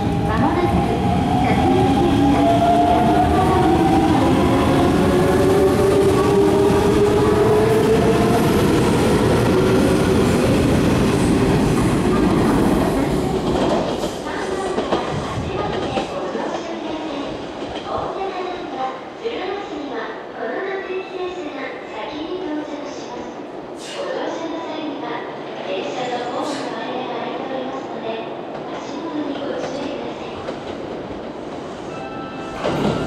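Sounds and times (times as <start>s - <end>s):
train rolling rumble: 0.0s - 18.2s.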